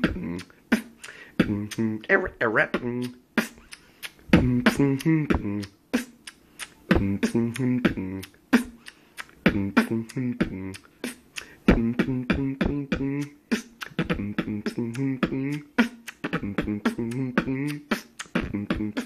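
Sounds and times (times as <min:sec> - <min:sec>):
beatboxing drum hits: 0:00.0 - 0:02.0, 0:02.6 - 0:19.0
warbling vocal line: 0:00.0 - 0:08.8, 0:09.4 - 0:19.0
hummed bass notes: 0:01.4 - 0:02.0, 0:04.3 - 0:05.8, 0:06.9 - 0:08.3.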